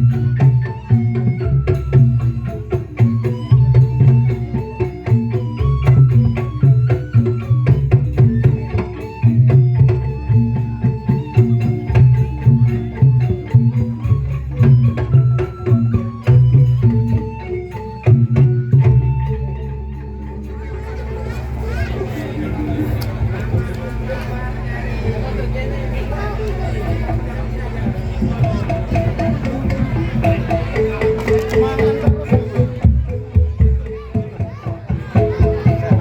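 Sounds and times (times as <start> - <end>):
instrumental dance music: 28.0 - 36.0.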